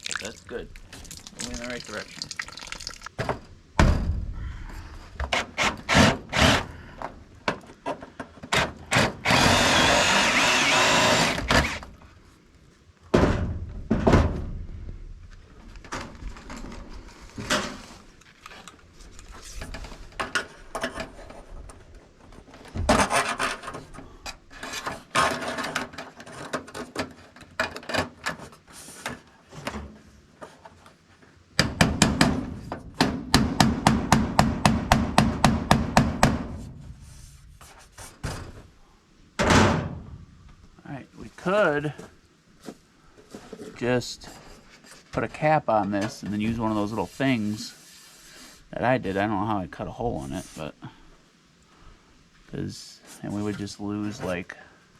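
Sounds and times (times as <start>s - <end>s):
knocks and thumps: 3.2s - 5.4s, 13.1s - 14.6s, 31.6s - 36.8s
power drill bursts: 8.9s - 11.8s.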